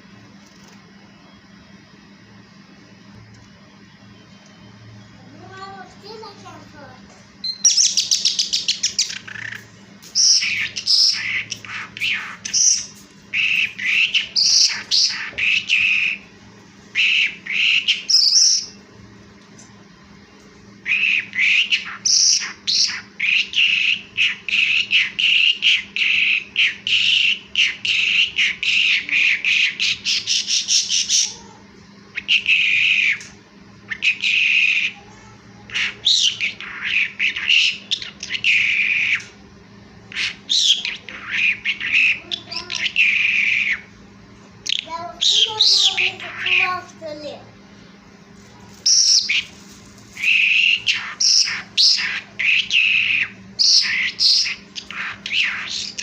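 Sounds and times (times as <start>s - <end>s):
skylark singing: 50.2s - 56.0s.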